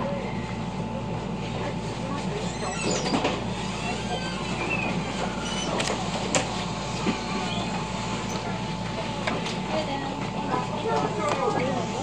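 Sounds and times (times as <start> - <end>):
faint wheel squeals: 2.4 - 5.8.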